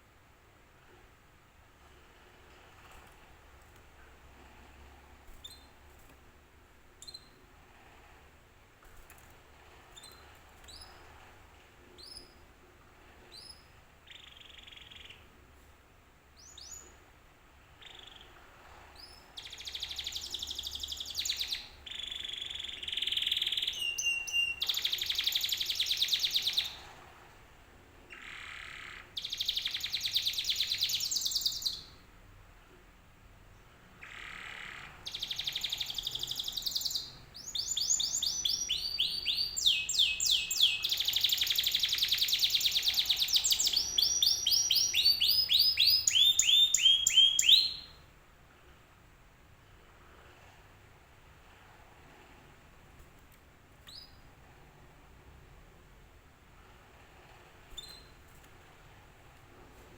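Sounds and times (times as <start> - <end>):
canary singing: 5.3 - 6.1, 7.0 - 7.4, 9.9 - 11.1, 13.3 - 15.3, 17.8 - 18.4, 19.0 - 26.8, 28.1 - 32.0, 34.0 - 48.0, 53.8 - 54.3, 57.7 - 58.5.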